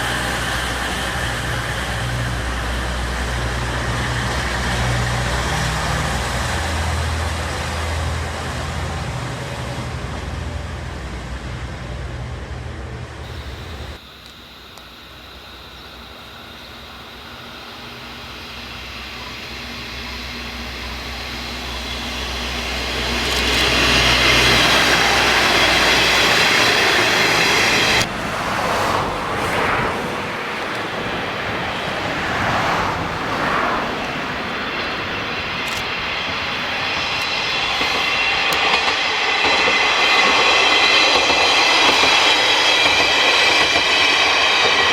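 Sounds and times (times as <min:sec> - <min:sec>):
railcar approaching rumble: 0:00.0 - 0:44.9
diesel engine low hum: 0:10.4 - 0:37.3.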